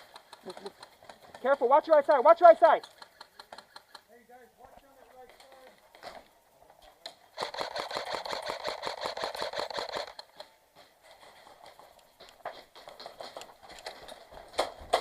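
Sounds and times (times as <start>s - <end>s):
scattered clicks: 0.0s - 15.0s
airsoft gun firing bursts: 7.3s - 10.5s.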